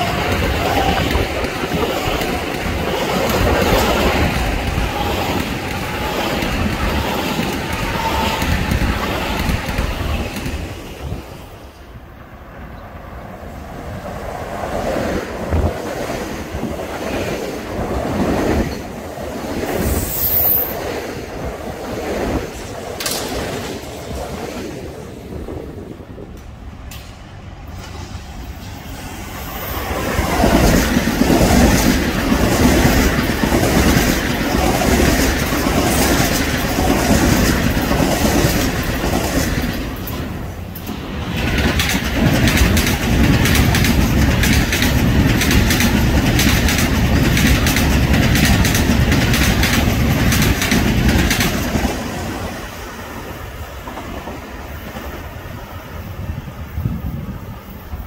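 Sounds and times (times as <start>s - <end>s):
electric train running past: 0.0s - 58.0s
wheels clacking over rail joints: 22.5s - 24.3s, 29.8s - 52.5s.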